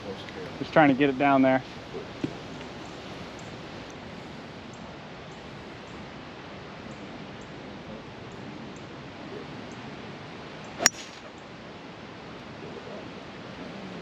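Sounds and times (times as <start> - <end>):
golf club striking ball: 10.8 - 11.4.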